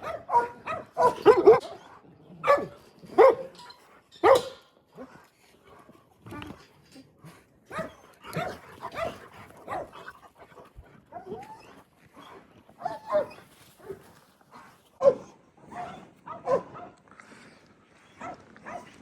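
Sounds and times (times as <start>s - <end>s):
dogs barking and yelping: 0.0s - 4.7s, 7.6s - 14.0s, 14.6s - 17.0s.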